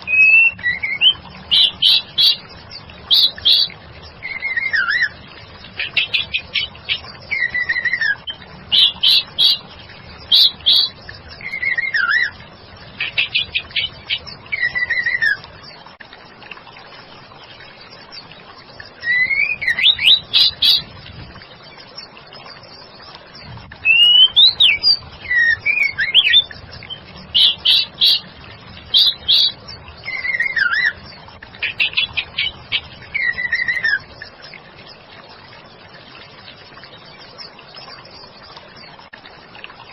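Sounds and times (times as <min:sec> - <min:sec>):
bird singing whistled phrases: 0:00.0 - 0:02.4, 0:03.1 - 0:05.1, 0:06.0 - 0:09.6, 0:10.3 - 0:12.4, 0:13.2 - 0:15.4, 0:19.0 - 0:20.8, 0:23.8 - 0:28.2, 0:28.9 - 0:31.0, 0:33.1 - 0:34.1.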